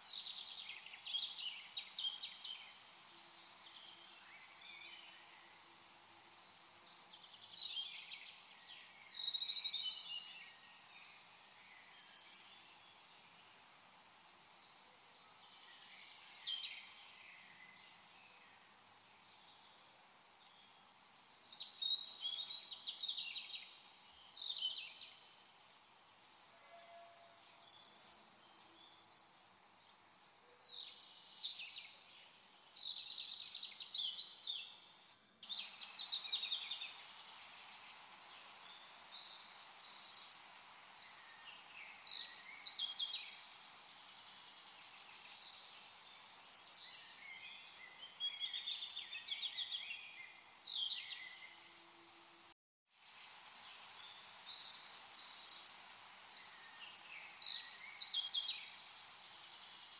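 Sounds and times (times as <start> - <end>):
steady background hiss: 0.0 - 59.9
birds chirping: 19.2 - 51.8, 53.5 - 59.9.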